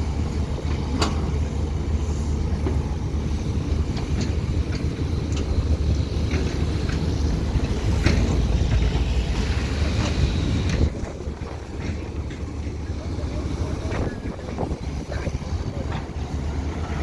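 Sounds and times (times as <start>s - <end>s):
excavator diesel engine rumbling: 0.0s - 17.0s
short clanks: 0.7s - 1.6s.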